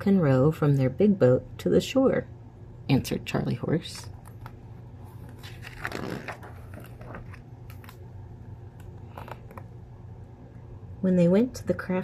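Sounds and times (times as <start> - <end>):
paper page rustling: 4.4 - 8.0.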